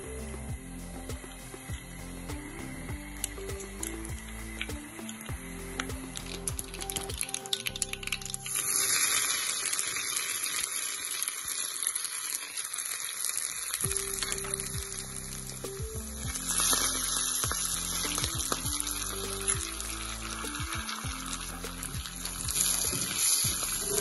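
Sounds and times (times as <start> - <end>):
background music: 0.0 - 8.8, 13.8 - 24.0
coconut sizzling in hot oil: 0.0 - 24.0.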